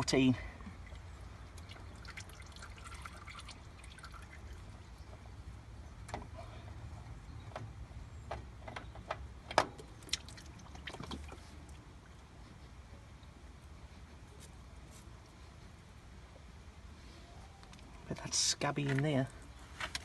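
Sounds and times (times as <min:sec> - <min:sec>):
oil dripping and trickling: 0:00.1 - 0:12.4.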